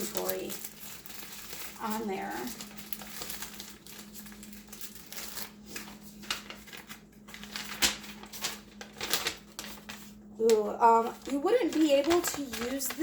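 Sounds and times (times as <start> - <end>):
faint steady hum: 0.0 - 13.0
packaging rustling and crinkling: 0.0 - 13.0.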